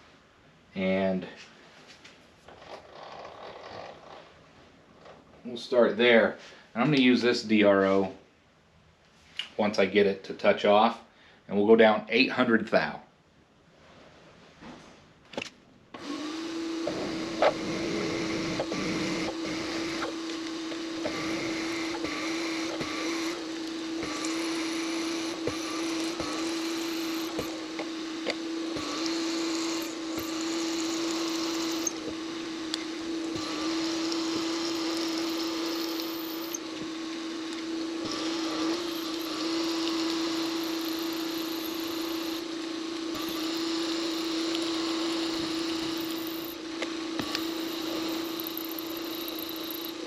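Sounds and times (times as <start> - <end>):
milling machine humming: 16.0 - 50.0
drill bit cutting metal hiss: 16.9 - 20.2, 21.0 - 27.6, 28.7 - 32.1, 33.2 - 36.6, 38.0 - 42.5, 43.1 - 46.6, 47.2 - 50.0.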